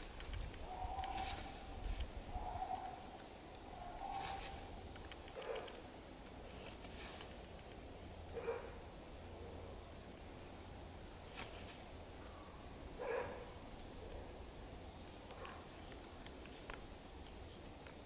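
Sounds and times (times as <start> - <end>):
bird calling: 0.0 - 5.7.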